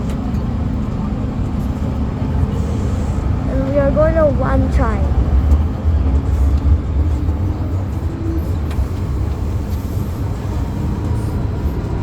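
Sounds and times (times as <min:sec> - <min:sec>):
metro train wheels rumbling: 0:00.0 - 0:12.0.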